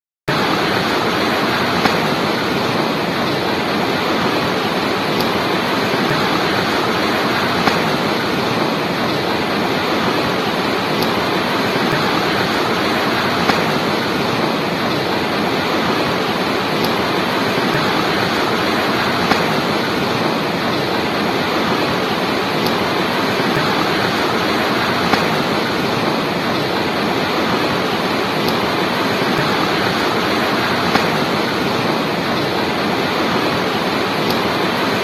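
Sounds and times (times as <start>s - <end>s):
river water rushing: 0.3s - 35.0s
faint clicks: 4.3s - 9.2s, 10.9s - 21.0s.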